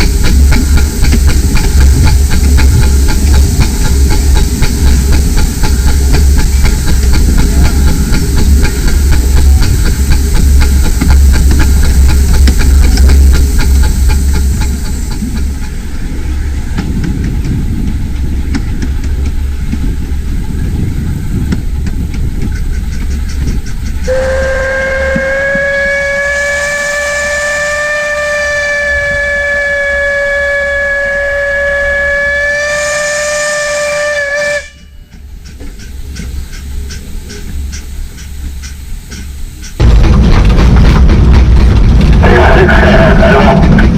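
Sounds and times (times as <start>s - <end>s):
train rumbling: 0.0s - 43.9s
steam locomotive whistle: 24.0s - 35.2s.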